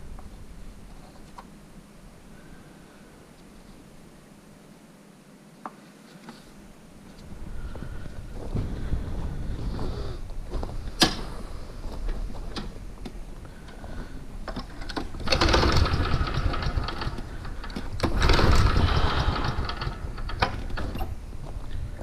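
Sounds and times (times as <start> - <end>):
mower engine cranking: 14.4 - 21.2.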